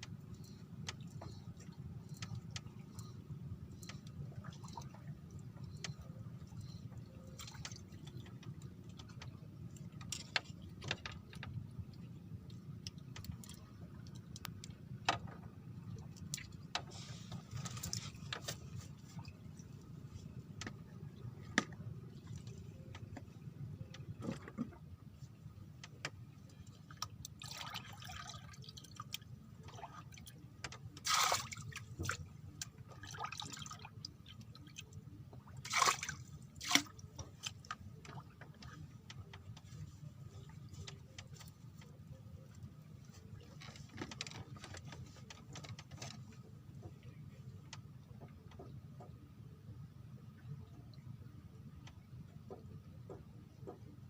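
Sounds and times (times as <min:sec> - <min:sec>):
water splashing and dripping: 0:26.9 - 0:38.8.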